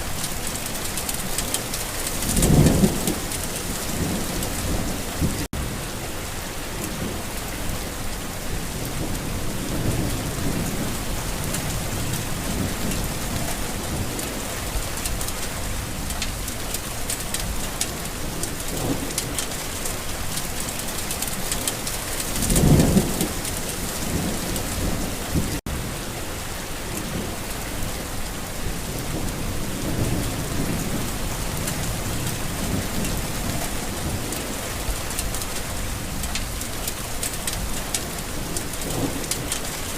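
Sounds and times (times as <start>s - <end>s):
thunder rumbling: 0.0s - 6.0s, 21.3s - 25.6s
steady rain falling: 0.0s - 39.9s.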